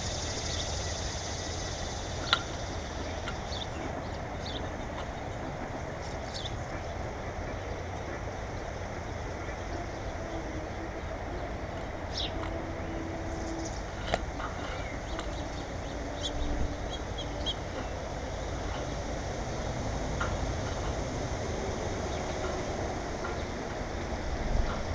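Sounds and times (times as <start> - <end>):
small birds chirping: 0.0 - 8.3, 9.1 - 19.3
low steady rumble: 0.0 - 24.9.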